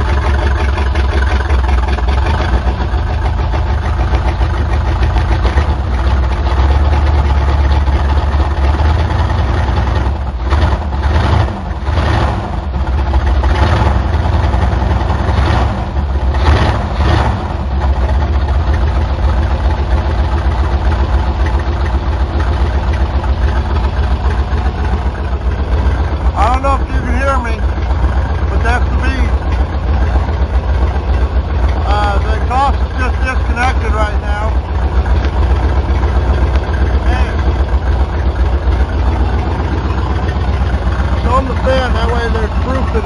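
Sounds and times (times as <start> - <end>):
loud engine idling and revving: 0.0 - 43.0.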